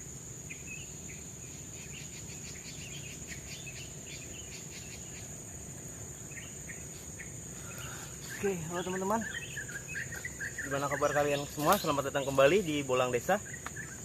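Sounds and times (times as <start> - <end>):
insects droning: 0.0 - 14.0
short chirping calls: 6.2 - 14.0.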